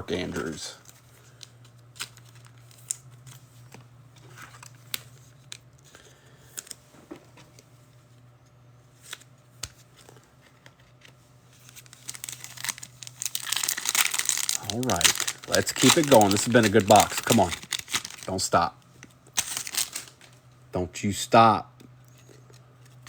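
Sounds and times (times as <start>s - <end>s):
cards being handled: 9.0s - 20.4s
wrapper crinkling: 11.6s - 20.4s.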